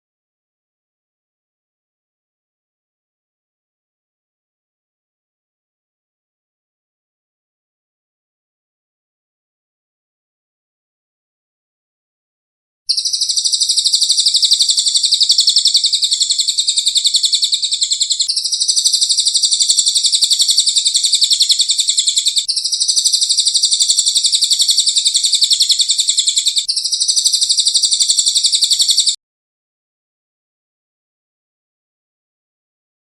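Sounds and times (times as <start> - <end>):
rapid high bird trill: 12.9 - 29.2.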